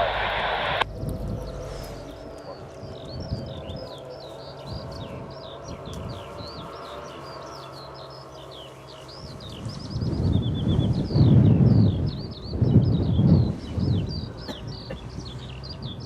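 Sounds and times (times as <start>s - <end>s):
loud low rumble: 0.0s - 8.3s
steady low hum: 0.0s - 14.4s
songbird chirping: 0.0s - 16.0s.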